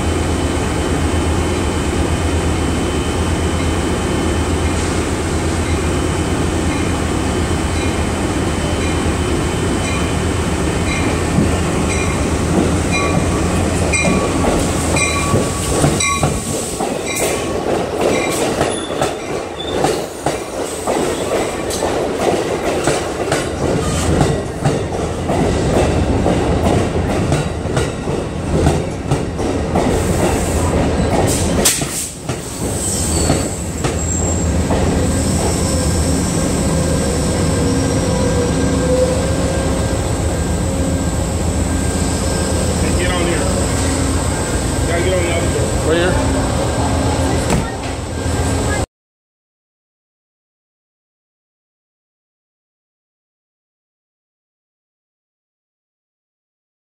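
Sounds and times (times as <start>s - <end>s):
train engine drone: 0.0s - 17.5s, 23.1s - 48.9s
train wheels rumbling: 0.0s - 48.8s
high wheel squeal: 32.6s - 39.6s.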